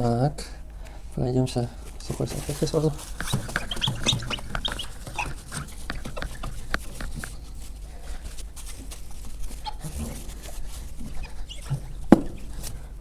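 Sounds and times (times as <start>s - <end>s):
napkin rubbing on glass: 2.0s - 7.8s, 8.7s - 12.7s
light taps: 2.9s - 7.4s
short squeaks: 3.1s - 7.4s, 9.5s - 12.6s.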